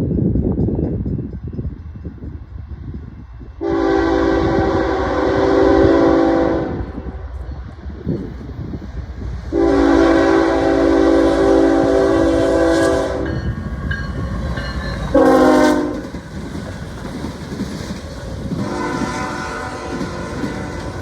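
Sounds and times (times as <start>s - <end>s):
train rumbling and clattering: 0.0s - 21.0s
locomotive air horn blasts: 3.6s - 7.0s, 9.5s - 13.4s, 15.1s - 16.1s, 18.6s - 21.0s.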